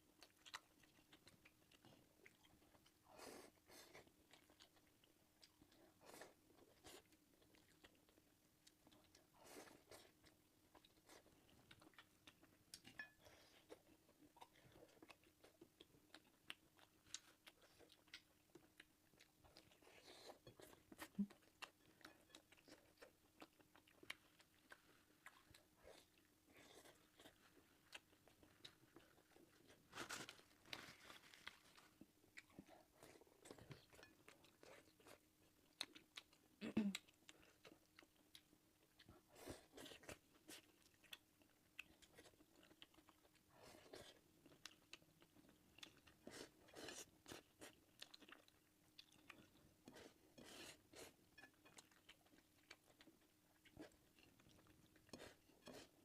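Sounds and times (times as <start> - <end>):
chewing and crunching food: 0.0 - 56.0.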